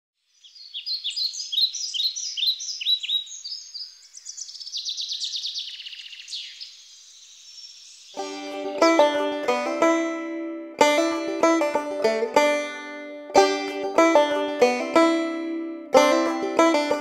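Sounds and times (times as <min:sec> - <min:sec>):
bird chirps sliding downward: 0:00.3 - 0:08.2
bird trill: 0:00.3 - 0:08.2
banjo music: 0:08.2 - 0:17.0.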